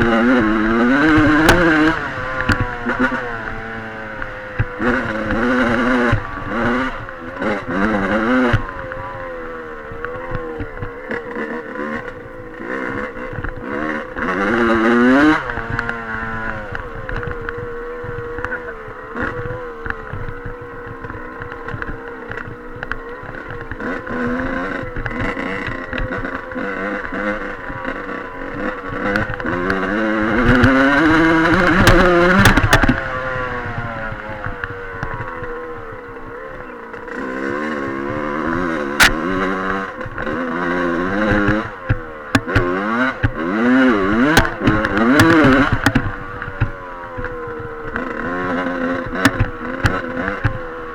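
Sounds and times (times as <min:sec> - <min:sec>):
dirt bike engine revving: 0:00.0 - 0:50.9
sharp knocks: 0:29.1 - 0:33.8.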